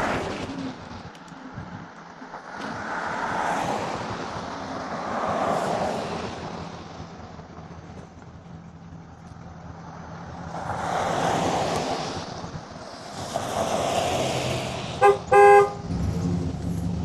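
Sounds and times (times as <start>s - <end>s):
wind and road noise: 0.0s - 17.0s
horn honking: 15.0s - 16.0s.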